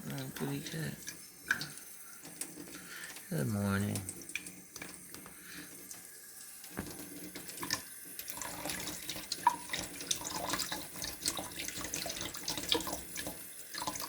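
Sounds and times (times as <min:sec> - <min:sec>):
water running from sink tap: 0:00.0 - 0:14.0.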